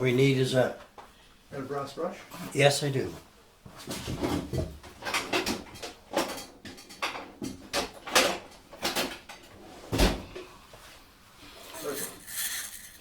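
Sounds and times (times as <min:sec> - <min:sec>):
wire brush scrubbing wood: 0:11.7 - 0:13.0.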